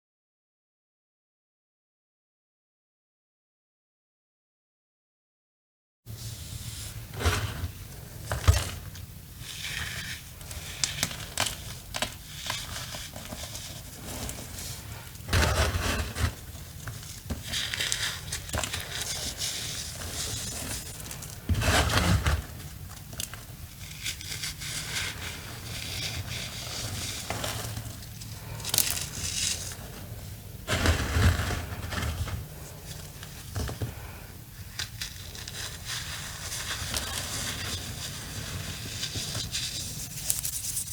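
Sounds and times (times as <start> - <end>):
cornstarch blocks crunching: 9.4 - 34.2, 34.8 - 40.9.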